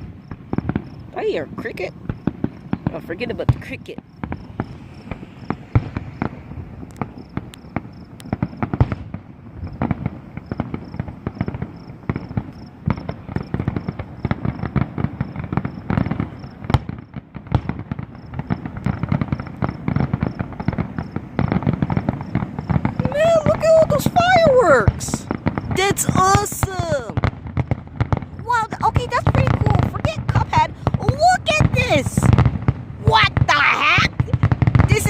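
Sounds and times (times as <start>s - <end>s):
cricket chirping: 0.0s - 8.8s, 9.4s - 17.2s, 17.9s - 26.1s
distant fireworks booms and crackling: 0.0s - 35.0s.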